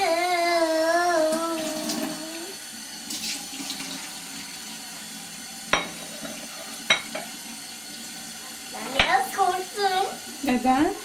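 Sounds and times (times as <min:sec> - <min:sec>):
tap water running into sink: 0:00.0 - 0:11.0.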